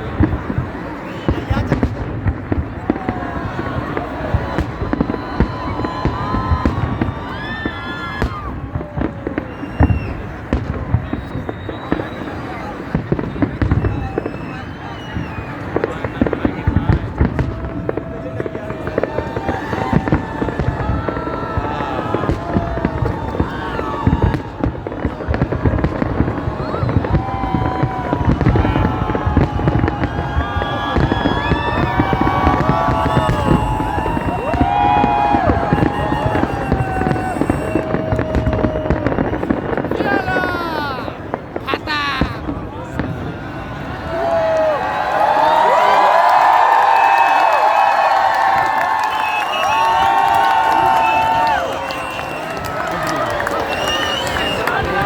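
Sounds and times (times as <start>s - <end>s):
fireworks bangs and pops: 0.0s - 55.0s
fireworks whistling: 0.0s - 55.0s
loud firework bang: 15.1s - 40.6s.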